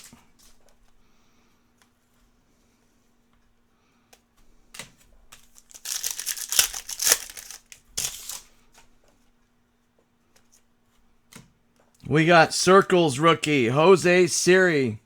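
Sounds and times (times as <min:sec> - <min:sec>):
foil wrapper crinkling and tearing: 0:05.4 - 0:08.5.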